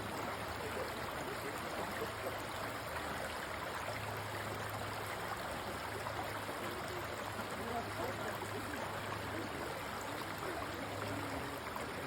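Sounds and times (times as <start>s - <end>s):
creek running over stones: 0.0s - 12.0s.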